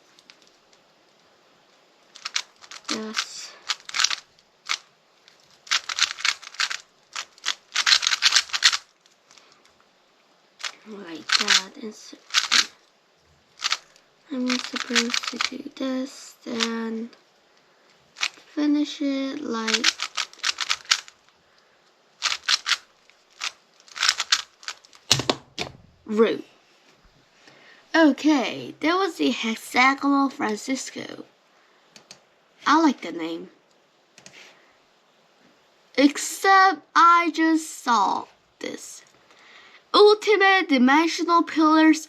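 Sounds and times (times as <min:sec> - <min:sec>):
speed cube clicking turns: 0:02.1 - 0:09.6, 0:10.6 - 0:12.8, 0:13.6 - 0:15.8, 0:18.2 - 0:18.5, 0:19.6 - 0:21.3, 0:22.2 - 0:25.4.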